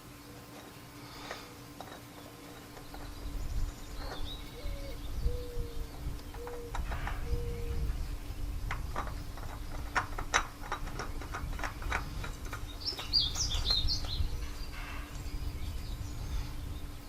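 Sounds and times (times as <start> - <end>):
bird chirping: 0.0 - 10.0, 10.9 - 17.0
faint steady hum: 0.0 - 17.0
clicks and knocks: 8.7 - 14.2.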